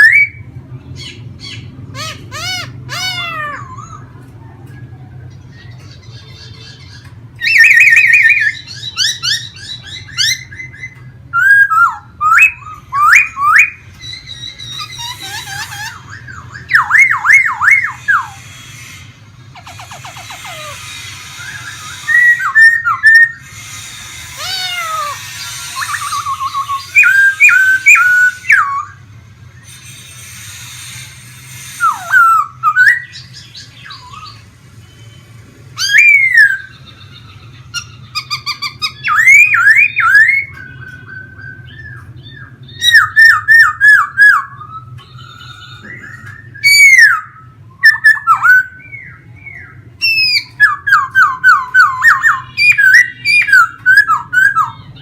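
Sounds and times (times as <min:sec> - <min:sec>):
laughingthrush whistled song: 0:07.4 - 0:18.4, 0:19.6 - 0:23.4, 0:24.4 - 0:29.0, 0:31.6 - 0:55.0.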